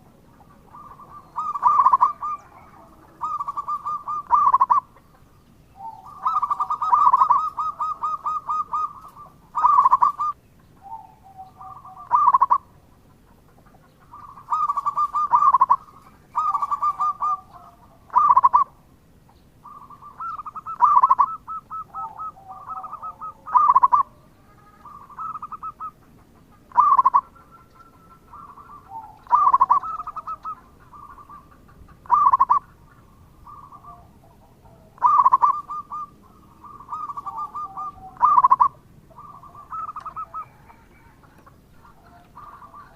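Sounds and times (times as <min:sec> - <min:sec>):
dove cooing: 0:00.0 - 0:18.9, 0:19.6 - 0:42.9.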